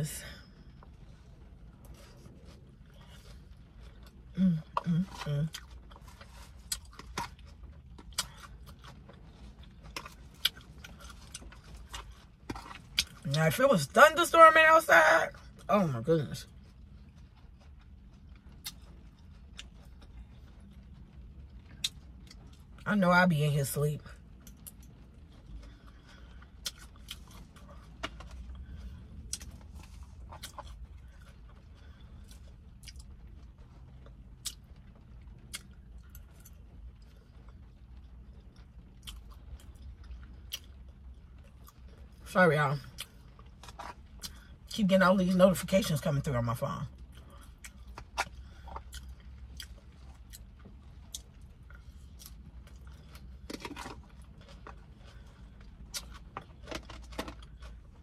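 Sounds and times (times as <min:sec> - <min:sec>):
low steady hum: 0:00.0 - 0:58.0
chewing and smacking: 0:00.7 - 0:13.4, 0:16.4 - 0:22.8, 0:24.3 - 0:42.2, 0:42.8 - 0:44.8, 0:46.9 - 0:58.0.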